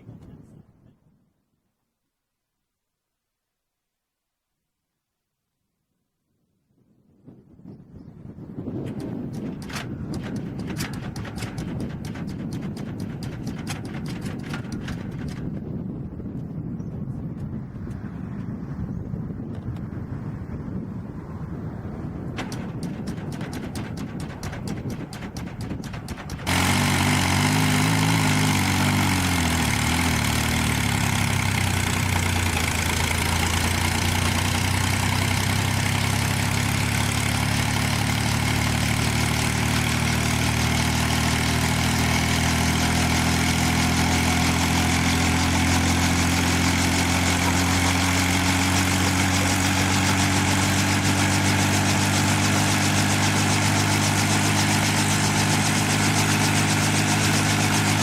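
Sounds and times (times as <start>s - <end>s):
helicopter engine and rotor: 8.9s - 15.5s, 22.4s - 29.0s, 30.5s - 58.0s.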